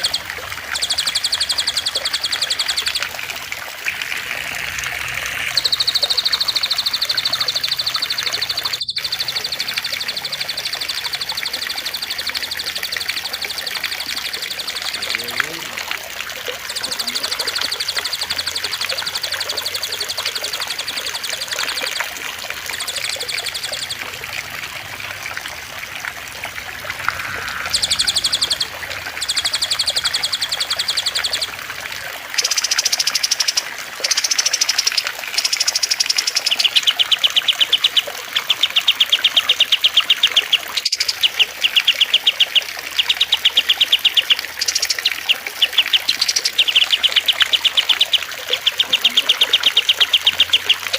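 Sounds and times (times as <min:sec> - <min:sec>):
songbirds trilling: 0:00.0 - 0:50.9
trickling water: 0:00.0 - 0:50.9.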